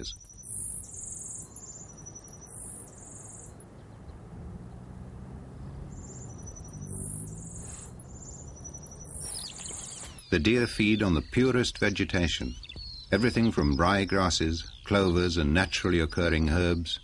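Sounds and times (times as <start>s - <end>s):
insects chirping: 0.0s - 3.9s, 5.4s - 10.4s.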